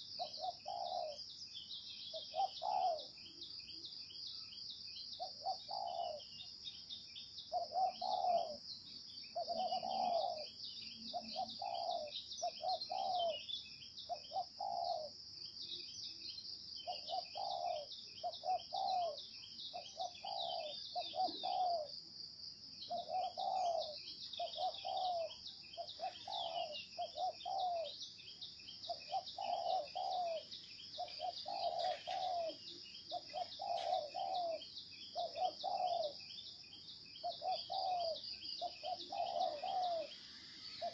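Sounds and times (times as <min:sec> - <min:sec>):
dove cooing: 0:00.0 - 0:01.2, 0:02.1 - 0:03.2, 0:05.2 - 0:06.3, 0:07.5 - 0:08.6, 0:09.4 - 0:13.4, 0:14.1 - 0:15.2, 0:16.8 - 0:22.0, 0:22.9 - 0:28.0, 0:28.8 - 0:36.3, 0:37.2 - 0:40.9.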